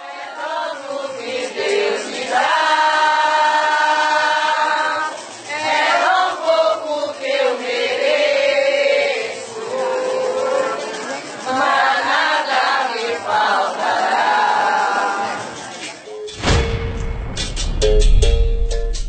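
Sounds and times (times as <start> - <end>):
group singing in chorus: 0.0 - 16.6.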